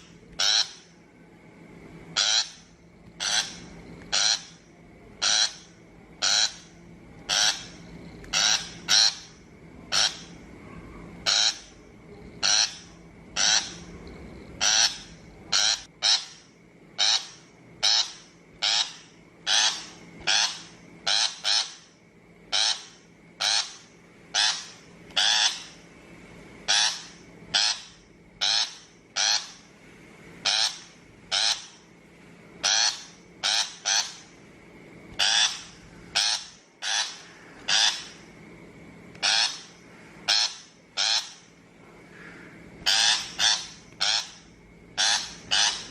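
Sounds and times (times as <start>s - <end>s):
shrike harsh calls: 0.0s - 1.0s, 2.1s - 13.9s, 14.6s - 21.9s, 22.5s - 25.8s, 26.6s - 29.7s, 30.4s - 31.9s, 32.6s - 34.3s, 35.2s - 38.3s, 39.2s - 45.9s.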